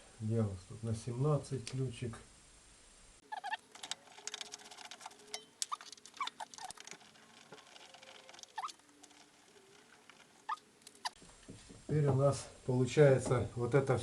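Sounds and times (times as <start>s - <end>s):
short squeaks: 3.3s - 3.7s, 5.4s - 11.2s.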